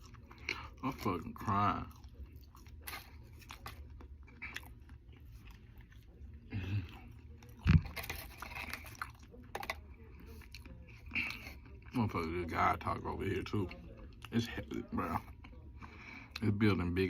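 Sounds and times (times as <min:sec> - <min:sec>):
person chewing: 0:00.0 - 0:12.0.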